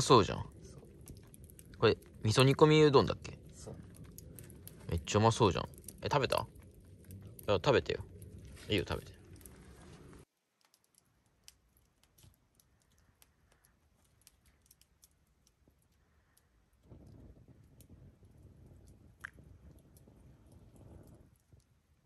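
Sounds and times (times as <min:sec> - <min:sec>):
small clicks: 0:08.1 - 0:18.0.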